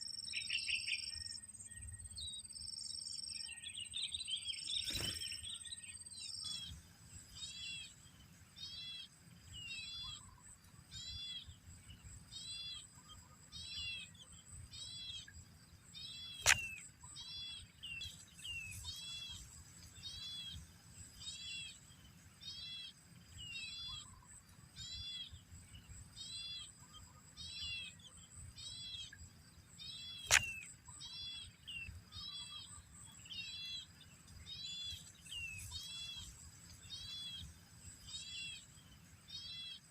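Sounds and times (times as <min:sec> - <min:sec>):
bird chirping: 0:00.0 - 0:39.9
sharp clicks: 0:16.4 - 0:16.9, 0:30.2 - 0:30.7.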